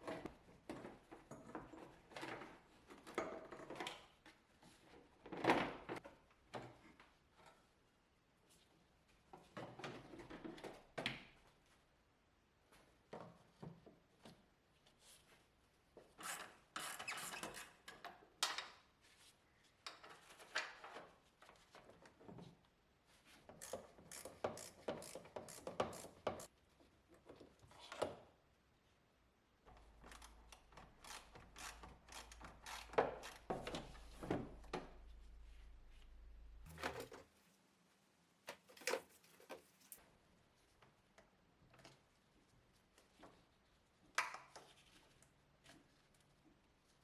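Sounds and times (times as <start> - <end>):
tools clicking and tapping: 23.6 - 26.5, 30.0 - 34.8
low steady hum: 33.9 - 37.6.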